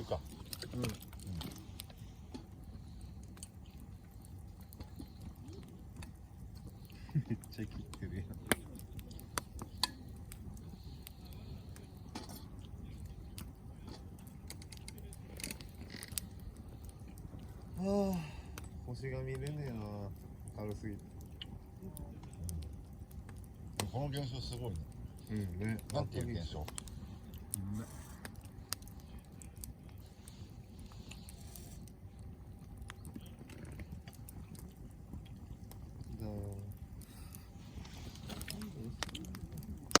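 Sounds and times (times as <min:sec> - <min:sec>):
campfire crackling: 0:00.0 - 0:40.0.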